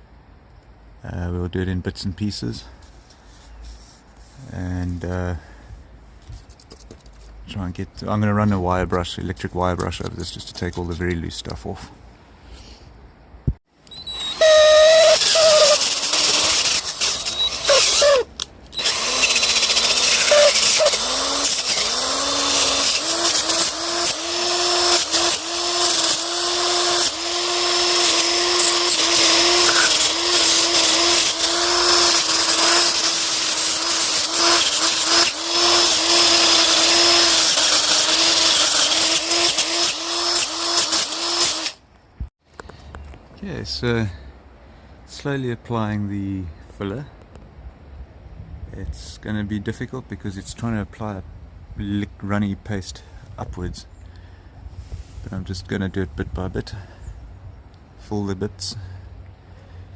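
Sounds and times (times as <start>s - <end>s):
wire brush scraping wood: 2.8s - 5.1s, 13.9s - 41.8s.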